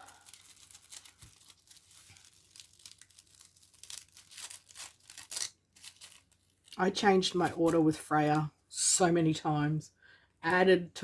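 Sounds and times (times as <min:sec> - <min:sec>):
paper envelopes rustling: 0:00.0 - 0:07.8.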